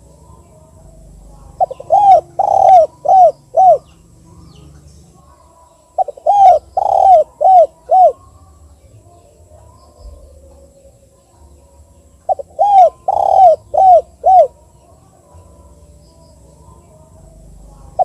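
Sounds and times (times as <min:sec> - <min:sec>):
dove cooing: 0:00.0 - 0:04.6, 0:05.2 - 0:08.3, 0:12.2 - 0:15.8.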